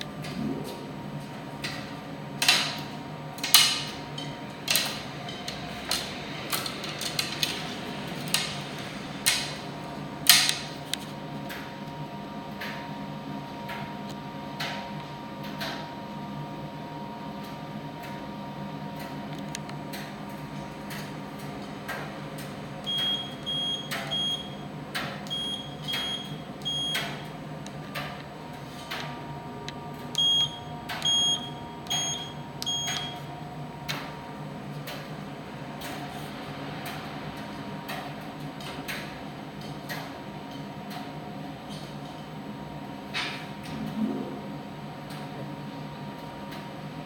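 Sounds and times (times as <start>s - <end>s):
tumble dryer humming: 0.0s - 11.9s.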